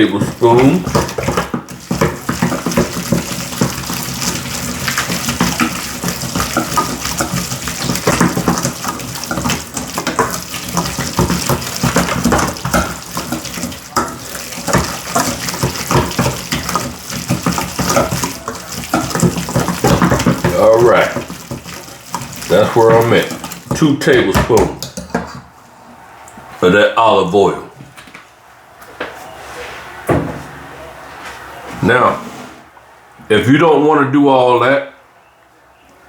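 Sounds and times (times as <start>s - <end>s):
liquid sloshing in blender: 0.0s - 25.6s.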